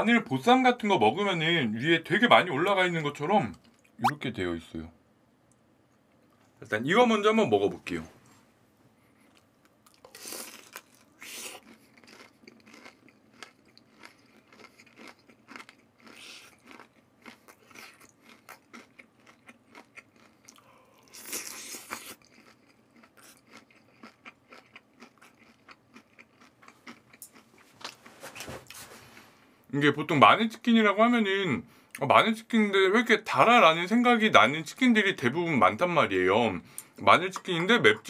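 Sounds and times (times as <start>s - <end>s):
crunching and chewing fried chicken: 9.1s - 29.3s.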